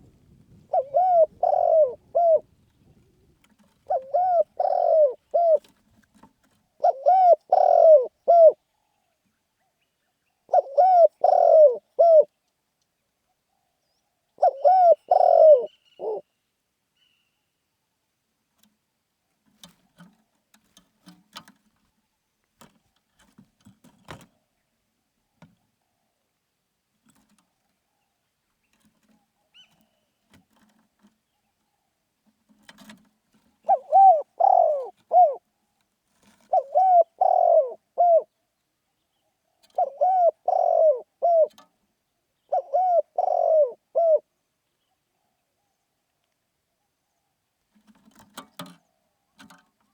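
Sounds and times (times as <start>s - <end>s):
dove cooing: 0.0s - 5.8s, 6.7s - 8.9s, 10.5s - 12.3s, 14.4s - 16.3s, 33.6s - 35.5s, 36.4s - 38.4s, 39.5s - 41.7s, 42.4s - 44.3s.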